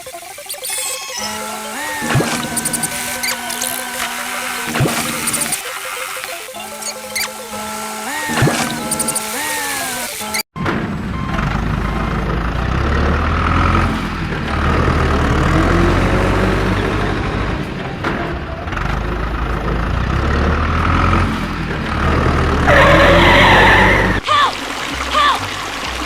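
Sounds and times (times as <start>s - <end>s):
short squeals: 0.4s - 10.5s, 22.6s - 24.2s
loud screeching: 0.5s - 10.5s, 22.6s - 24.2s
vehicle engines droning: 6.4s - 24.2s.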